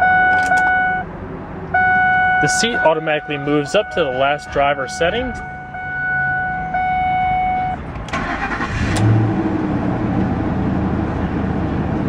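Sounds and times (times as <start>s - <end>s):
car engine cranking and idling: 0.0s - 12.0s
warning chime tone: 1.8s - 7.8s.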